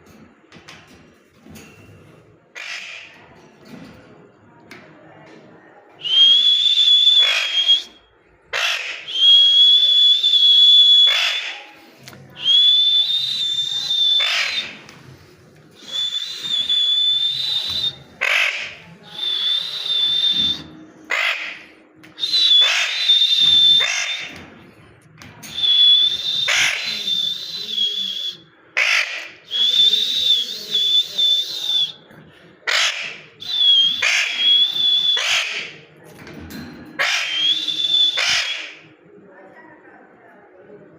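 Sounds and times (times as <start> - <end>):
parrot squawking: 2.5 - 3.2, 7.2 - 7.8, 8.5 - 9.2, 11.0 - 11.7, 13.8 - 14.8, 17.9 - 18.8, 21.1 - 21.6, 22.4 - 24.3, 26.4 - 27.0, 28.8 - 29.4, 32.6 - 35.8, 37.0 - 38.8
parrot whistling: 6.0 - 8.0, 8.6 - 11.6, 12.4 - 14.8, 15.7 - 21.4, 22.2 - 24.3, 25.5 - 32.0, 32.7 - 35.8, 37.0 - 38.9.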